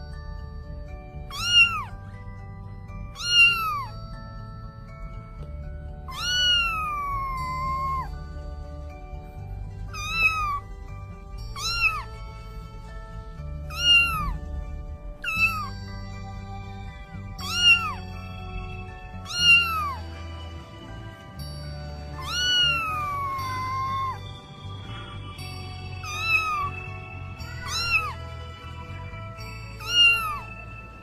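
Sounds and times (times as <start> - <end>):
background music with low bass: 0.0 - 31.0
cat meowing: 1.3 - 2.0, 3.1 - 4.0, 6.1 - 8.1, 9.9 - 10.6, 11.5 - 12.1, 13.7 - 14.4, 15.2 - 15.7, 17.4 - 18.1, 19.2 - 20.0, 22.1 - 24.2, 26.0 - 26.8, 27.4 - 28.2, 29.8 - 30.5.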